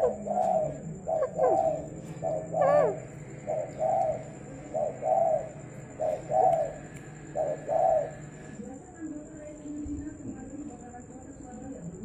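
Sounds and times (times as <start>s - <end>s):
dove cooing: 0.0s - 8.6s.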